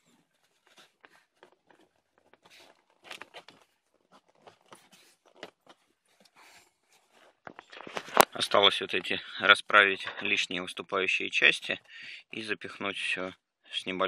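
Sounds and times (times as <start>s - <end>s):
plastic air duct rustling and scraping: 0.0s - 10.5s.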